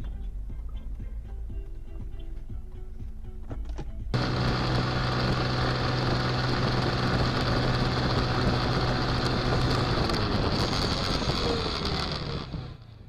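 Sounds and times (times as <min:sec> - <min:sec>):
car engine and road noise: 0:03.2 - 0:13.0
low hum: 0:04.0 - 0:13.0.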